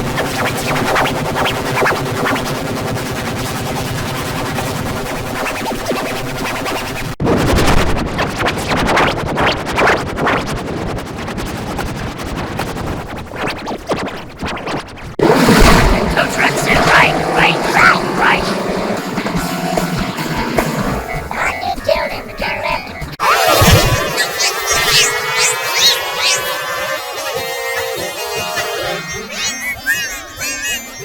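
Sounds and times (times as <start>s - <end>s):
distorted droning music: 15.2s - 31.0s.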